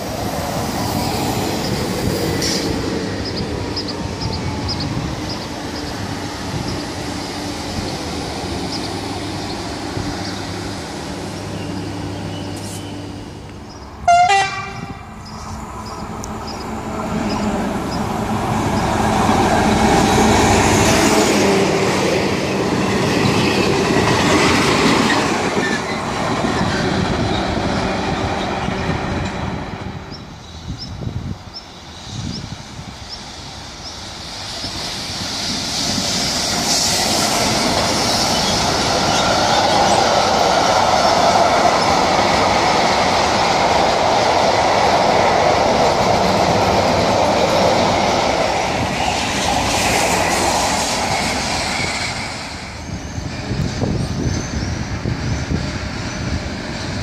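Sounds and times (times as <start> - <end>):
diesel locomotive engine: 0.0 - 57.0
electric train hum: 0.0 - 57.0
loud train horn blast: 14.0 - 15.0
rail clicks: 14.6 - 57.0.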